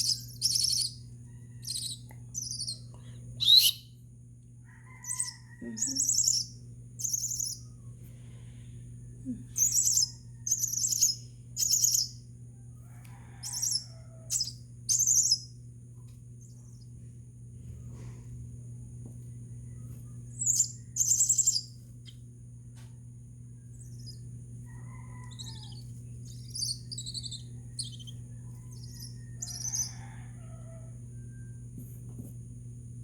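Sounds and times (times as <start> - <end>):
steady low hum: 0.0 - 33.0
chick begging calls: 24.7 - 30.7.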